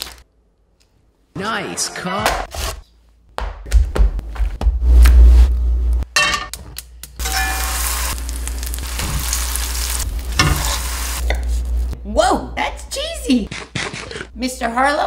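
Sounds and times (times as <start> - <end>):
sandwich sizzling in frying pan: 7.2 - 12.0.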